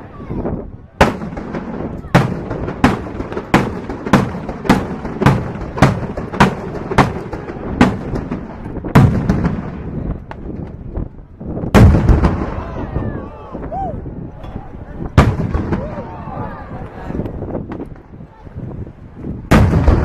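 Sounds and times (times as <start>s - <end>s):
fireworks bursting: 1.0s - 13.1s, 15.2s - 16.0s, 19.5s - 20.0s
loud deep boom: 11.6s - 13.3s, 15.1s - 16.5s, 19.5s - 20.0s.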